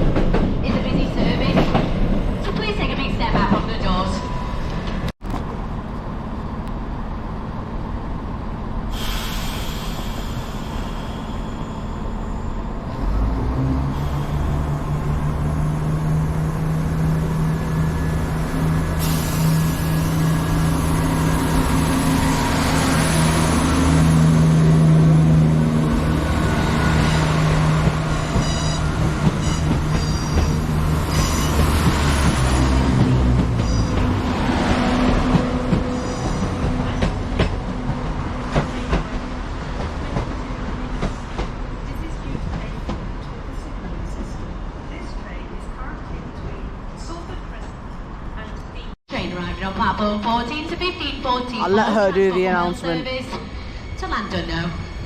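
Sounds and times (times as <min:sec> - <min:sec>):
diesel train engine: 0:04.6 - 0:48.9
high wheel or brake squeals: 0:28.3 - 0:31.7.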